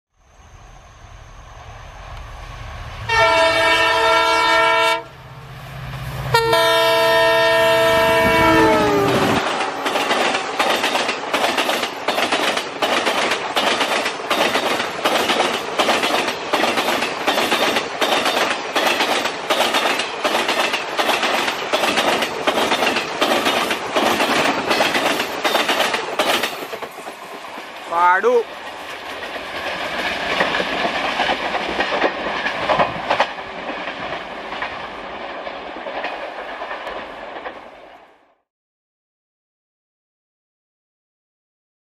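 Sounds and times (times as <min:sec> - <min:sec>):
locomotive horn: 0:03.1 - 0:05.2, 0:06.3 - 0:09.5
train wheels clicking over rail joints: 0:09.0 - 0:27.9, 0:28.5 - 0:38.0.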